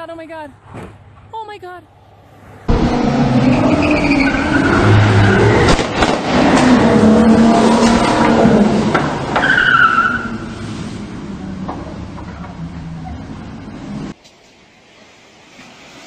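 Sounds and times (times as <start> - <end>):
tyres squealing and skidding: 2.7 - 5.8, 6.4 - 10.8
car engine revving hard: 2.7 - 11.3.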